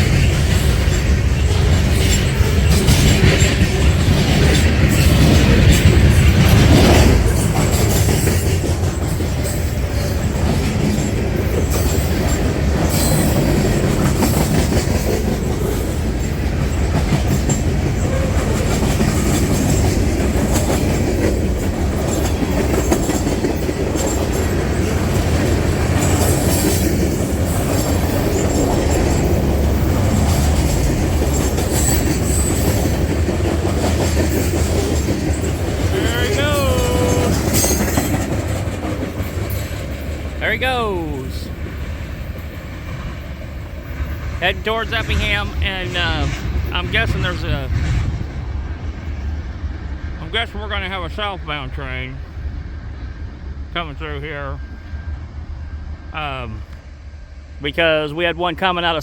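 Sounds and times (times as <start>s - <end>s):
train cars rolling over rails: 0.0s - 52.3s.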